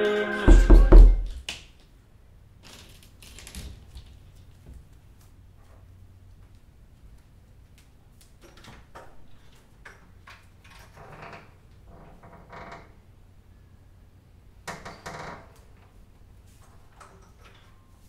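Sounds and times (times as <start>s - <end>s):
short creaks and clicks: 7.8s - 13.0s.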